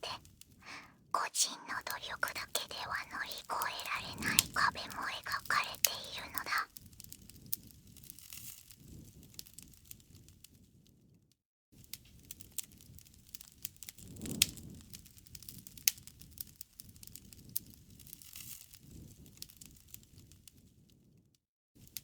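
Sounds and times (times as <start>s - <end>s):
bonfire crackling: 1.6s - 7.6s.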